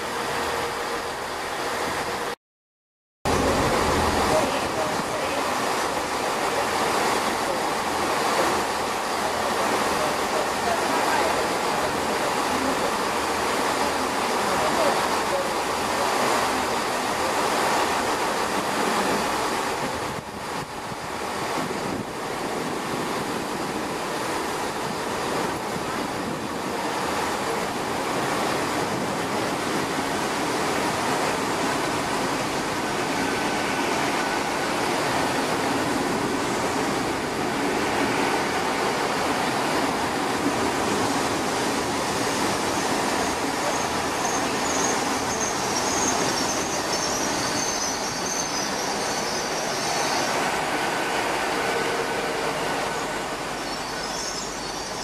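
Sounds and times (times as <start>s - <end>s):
train pulling in rushing: 0.0s - 2.4s, 3.3s - 55.0s
faint brake squeal: 43.7s - 50.2s.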